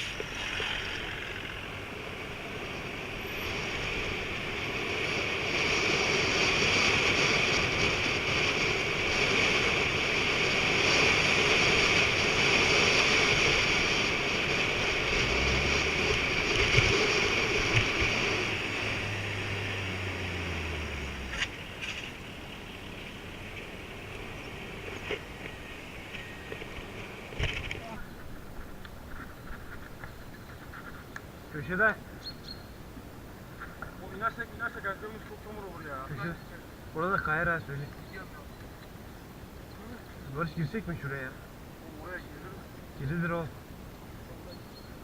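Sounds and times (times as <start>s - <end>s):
bike tyres rolling: 0.0s - 31.5s.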